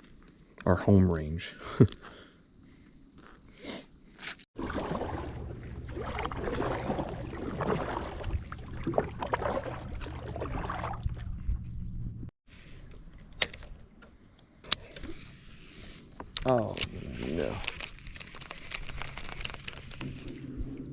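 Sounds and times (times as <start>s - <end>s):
water sloshing: 4.6s - 12.3s
steady low hum: 4.7s - 12.3s.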